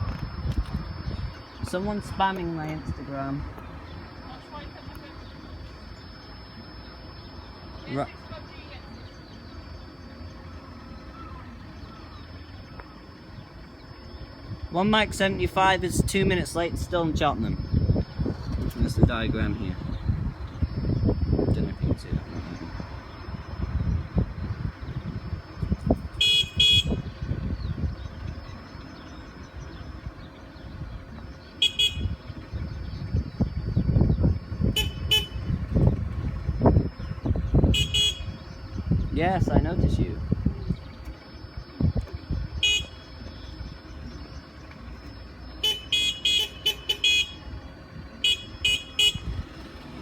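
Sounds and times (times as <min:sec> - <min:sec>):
passing road traffic rumble: 0:00.0 - 0:50.0
vehicle horn double beep: 0:24.8 - 0:28.5, 0:31.5 - 0:36.0, 0:36.6 - 0:38.8, 0:42.4 - 0:44.0, 0:45.2 - 0:47.6, 0:48.2 - 0:49.7.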